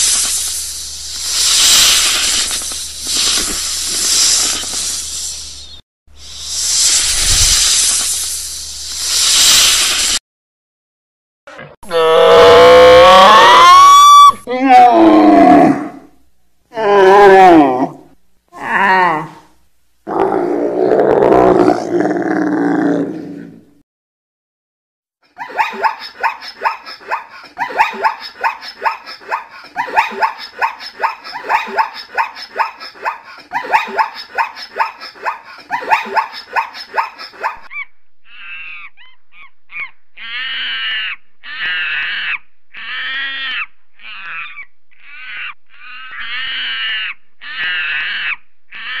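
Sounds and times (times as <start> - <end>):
monkeys high-pitched calls: 37.4 - 49.0.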